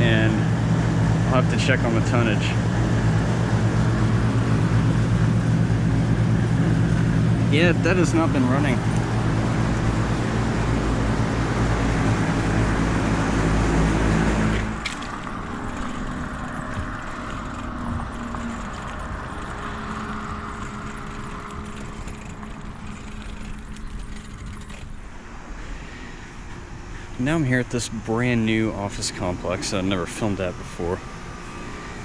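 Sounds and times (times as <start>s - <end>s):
air conditioning droning hum: 0.0s - 32.0s
bicycle road rumble: 0.0s - 32.0s
wind while cycling: 1.9s - 7.6s, 8.4s - 27.2s.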